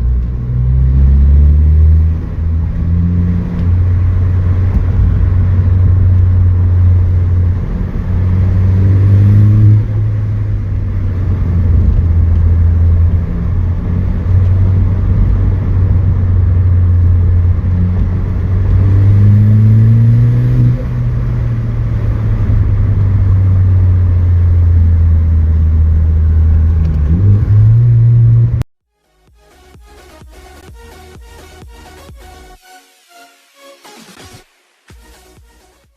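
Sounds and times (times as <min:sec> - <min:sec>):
engine revving under acceleration: 0:00.0 - 0:28.7
car exhaust drone: 0:00.0 - 0:32.5.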